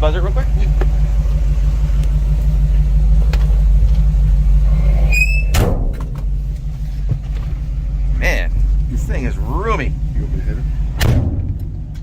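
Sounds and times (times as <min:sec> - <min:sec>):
engine idling: 0:00.0 - 0:12.0
high squeak: 0:05.0 - 0:05.6.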